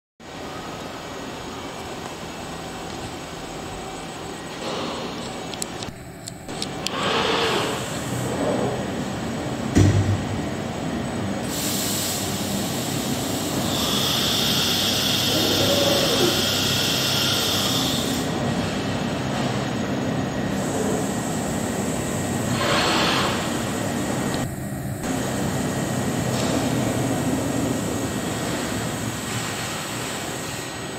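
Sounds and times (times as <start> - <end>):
high machine whine: 0.2 - 30.9
cnc router mechanical drone: 12.2 - 30.9.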